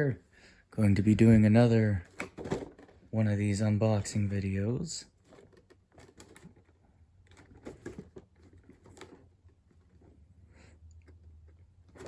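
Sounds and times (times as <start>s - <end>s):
packaging rustling: 4.7s - 10.2s.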